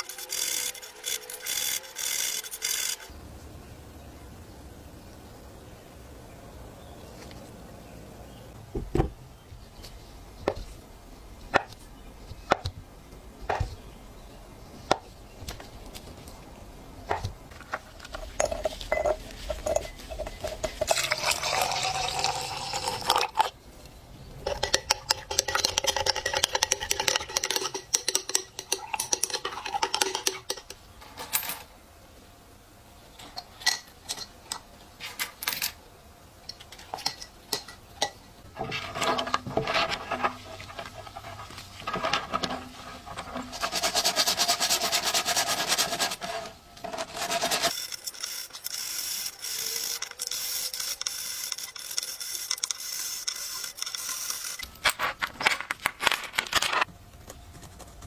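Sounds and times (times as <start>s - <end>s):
coins rattling and scraping: 0.0s - 3.1s, 24.7s - 31.7s, 46.9s - 56.9s
metal coins clinking in a dish: 47.7s - 55.6s.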